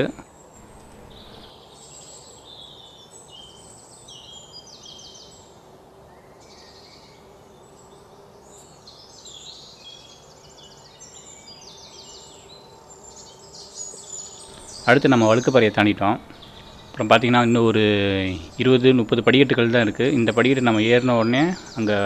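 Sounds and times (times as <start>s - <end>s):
birds chirping and trilling: 0.0s - 5.6s, 6.2s - 22.0s.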